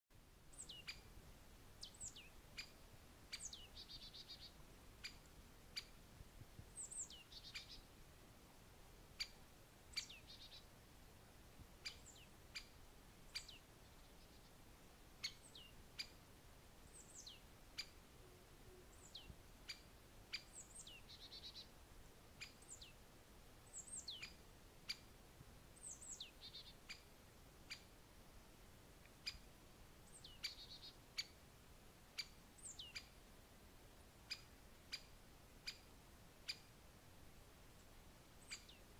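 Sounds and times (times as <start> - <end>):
bird chirps: 0.5 - 1.1, 1.8 - 5.9, 6.8 - 7.9, 9.2 - 10.7, 11.8 - 12.7, 13.3 - 14.5, 15.2 - 16.2, 16.8 - 21.7, 22.4 - 23.0, 23.6 - 25.0, 25.8 - 27.0, 30.0 - 31.4, 32.2 - 33.2, 34.3 - 36.7, 38.4 - 38.9
bird twittering: 30.1 - 31.3, 38.5 - 38.8.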